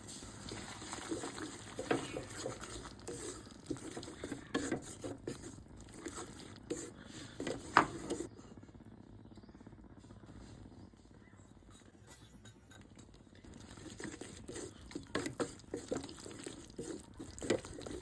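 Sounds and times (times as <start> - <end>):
spoon knocking and scraping pot: 1.0 - 8.3, 11.8 - 18.0.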